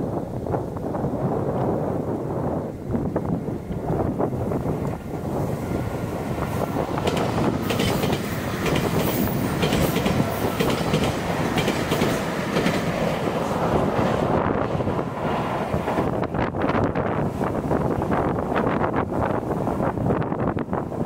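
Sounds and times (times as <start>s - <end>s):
electric train rumbling: 0.0s - 21.0s
train wheels clacking over rail joints: 6.9s - 13.3s.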